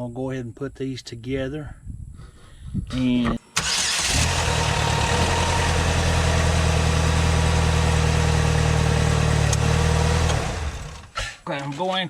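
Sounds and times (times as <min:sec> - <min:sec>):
engine idling: 0:03.6 - 0:11.2
engine shutting off: 0:03.6 - 0:11.4.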